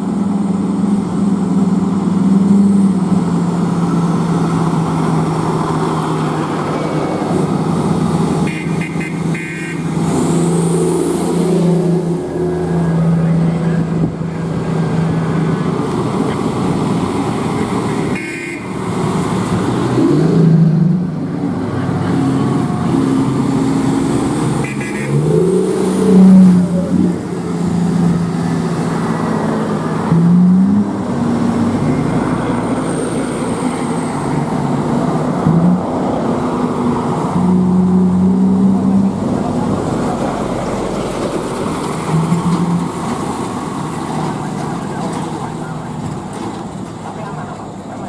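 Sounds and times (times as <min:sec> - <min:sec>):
diesel truck engine revving: 0:00.0 - 0:48.0.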